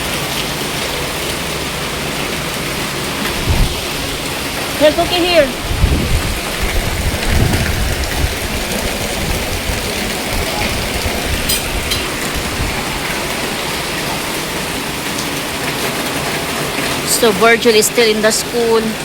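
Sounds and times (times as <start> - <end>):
heavy rain pouring: 0.0 - 19.0
low rumble: 5.5 - 14.8.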